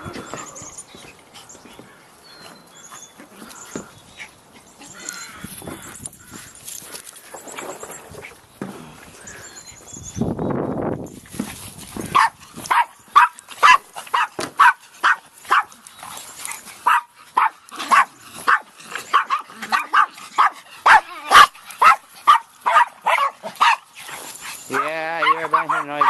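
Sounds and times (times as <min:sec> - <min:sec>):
dogs barking: 0:12.1 - 0:15.8, 0:16.8 - 0:23.9, 0:24.7 - 0:26.0.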